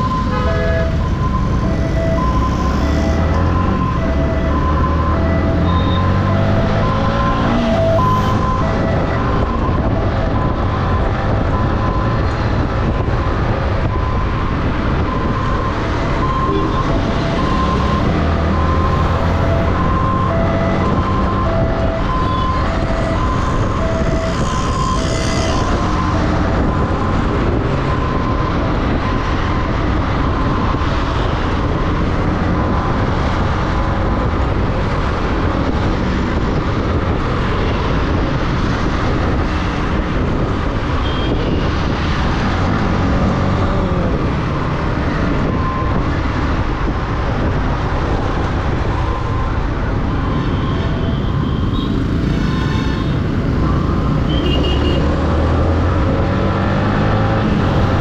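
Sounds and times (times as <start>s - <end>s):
surrounding traffic: 0.0s - 58.0s
wind rush on microphone: 0.0s - 58.0s.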